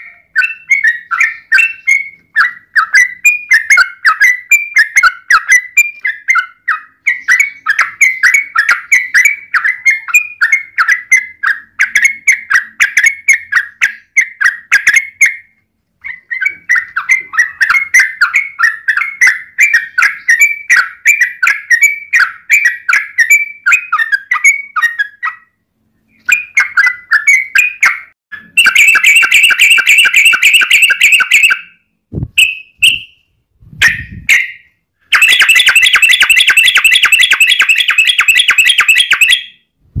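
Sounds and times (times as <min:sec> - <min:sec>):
bird rolling trill: 0:28.6 - 0:31.6, 0:35.1 - 0:39.4
bird singing bubbly phrases: 0:28.6 - 0:31.8, 0:33.9 - 0:39.5.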